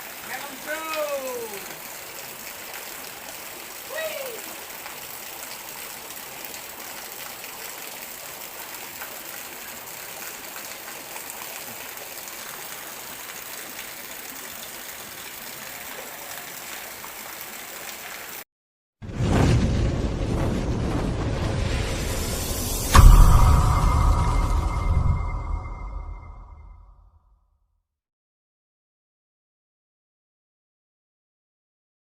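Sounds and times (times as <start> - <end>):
river water rushing: 0.0 - 18.0
loud sound with heavy low end: 19.0 - 26.9.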